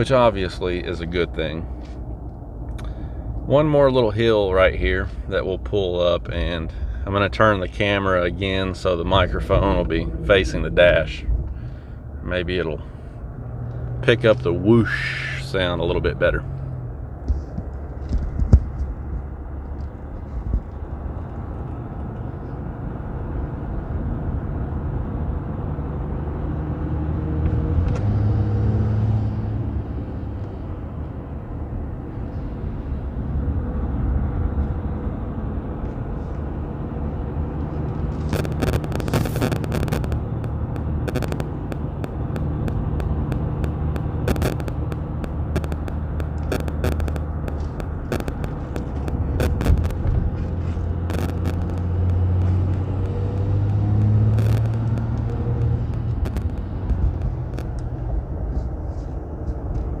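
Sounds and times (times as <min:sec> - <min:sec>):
turbo intake whoosh: 0:00.0 - 0:19.5, 0:20.2 - 0:59.7
diesel engine droning under load: 0:00.0 - 1:00.0
sharp clicks and knocks: 0:17.2 - 0:20.8, 0:37.8 - 0:58.2.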